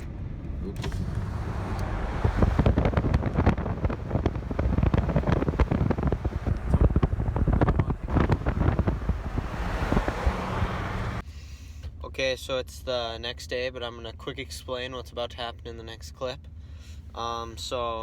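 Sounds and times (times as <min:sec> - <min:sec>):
moving vehicle rumble: 0:00.0 - 0:12.0
wind buffeting microphone: 0:00.1 - 0:11.2.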